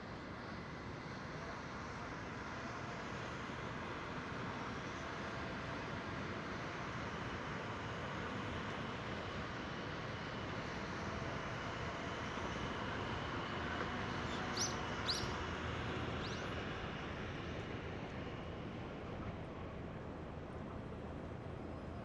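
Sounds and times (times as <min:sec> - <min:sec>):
outdoor background noise: 0:00.0 - 0:22.0
high bird chirps: 0:14.3 - 0:15.3.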